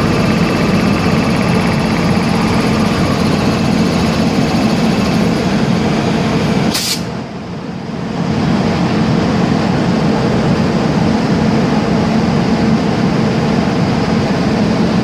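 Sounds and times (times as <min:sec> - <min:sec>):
vehicle running hum: 0:00.0 - 0:15.0
short hiss: 0:06.6 - 0:07.2.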